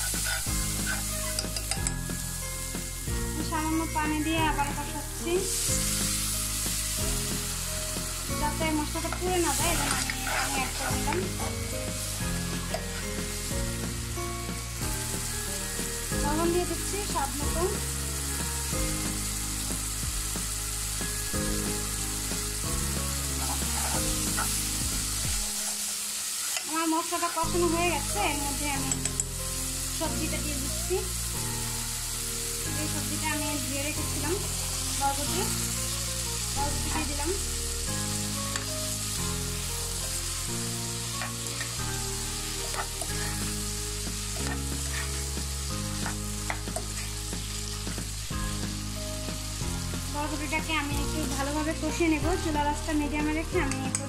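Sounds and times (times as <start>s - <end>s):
masala sizzling in oil: 0.0s - 54.0s
spatula scraping and tapping pan: 0.1s - 2.0s, 23.3s - 24.6s, 28.8s - 29.4s, 42.6s - 43.5s, 44.3s - 47.2s.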